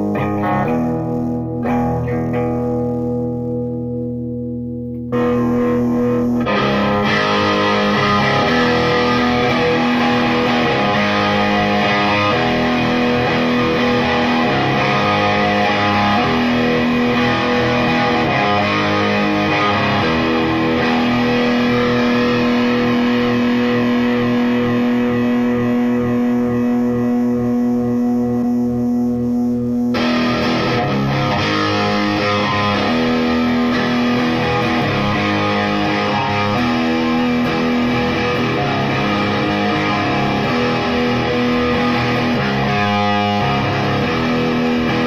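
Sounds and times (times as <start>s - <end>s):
distorted electric guitar: 0.0s - 45.0s.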